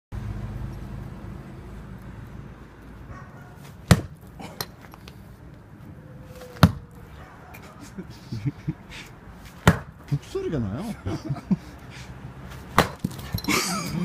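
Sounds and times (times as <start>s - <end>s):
axe striking log: 3.7s - 4.8s, 6.5s - 6.9s, 9.6s - 10.0s, 12.7s - 13.2s.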